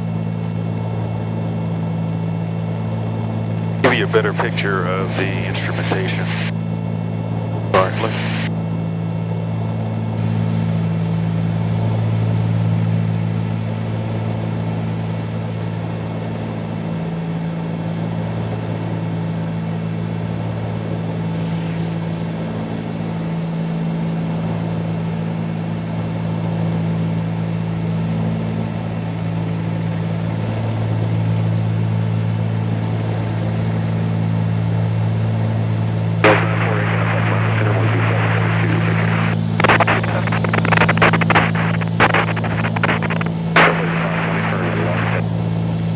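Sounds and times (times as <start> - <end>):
aircraft engines droning: 10.2 - 28.0, 28.7 - 45.9.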